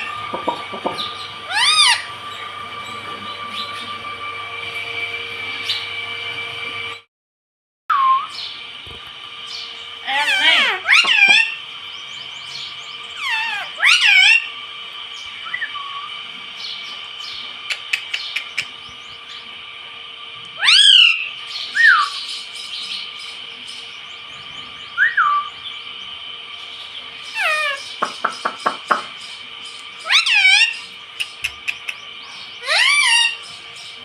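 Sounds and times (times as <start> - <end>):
parrot screeching: 0.0 - 3.0, 10.0 - 11.7, 13.1 - 14.6, 20.6 - 22.3, 25.0 - 25.6, 27.3 - 28.0, 30.0 - 31.0, 32.6 - 33.6
parrot chirps: 1.0 - 2.5, 10.0 - 11.6, 12.4 - 14.6, 20.6 - 24.0, 27.3 - 29.2, 29.9 - 34.0.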